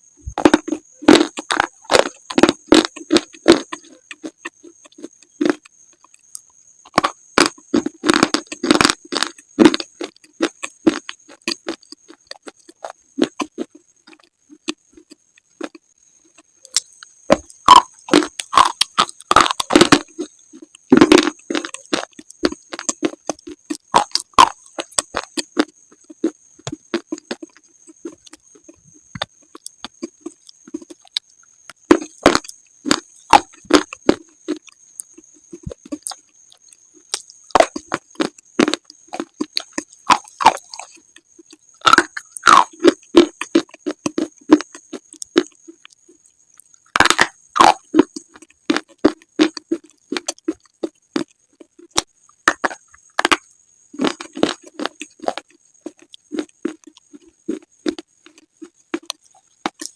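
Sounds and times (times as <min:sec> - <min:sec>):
slate crunching when bitten: 0:00.4 - 0:05.6, 0:16.7 - 0:27.5, 0:31.9 - 0:34.7, 0:35.6 - 0:41.0, 0:41.8 - 0:45.6, 0:47.0 - 0:50.6.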